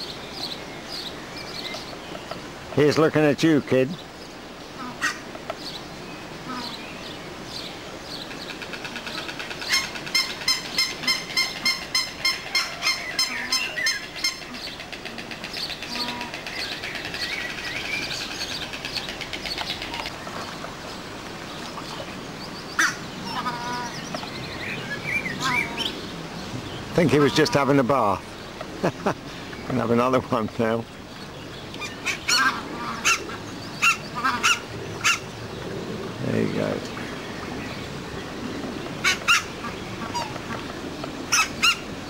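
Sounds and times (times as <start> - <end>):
small birds chirping: 0.0 - 42.0
large bird honking: 4.8 - 5.2, 6.4 - 6.8, 8.6 - 17.8, 18.6 - 20.2, 22.8 - 24.0, 25.2 - 26.0, 27.0 - 27.9, 31.8 - 35.2, 39.0 - 40.6.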